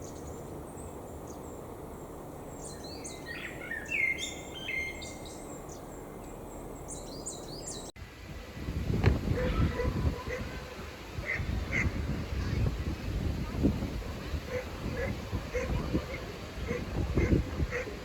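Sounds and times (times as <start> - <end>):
small birds chirping: 0.0 - 8.0.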